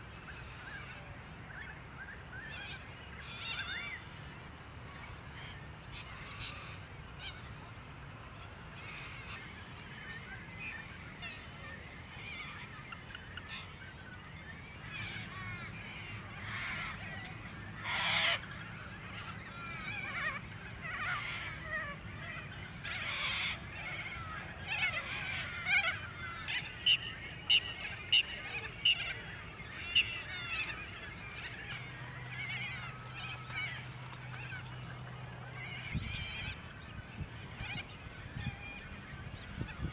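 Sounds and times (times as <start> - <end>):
birds calling: 8.8 - 39.9
loud harsh bird call: 25.0 - 30.9
sharp evenly spaced calls: 25.7 - 30.8.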